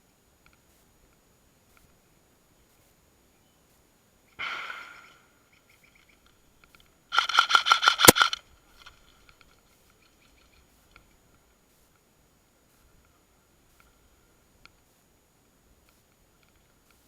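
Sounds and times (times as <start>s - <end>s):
faint clicks: 0.4s - 2.0s, 4.4s - 12.1s, 14.6s - 14.9s, 15.8s - 17.0s
loud gun crack: 4.4s - 5.4s, 7.1s - 8.4s
airsoft gun firing bursts: 7.1s - 8.4s.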